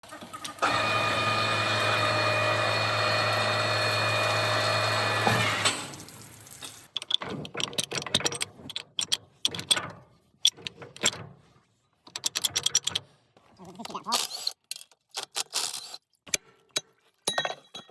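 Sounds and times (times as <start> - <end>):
sharp clicks and knocks: 6.9 - 11.4, 12.0 - 13.1.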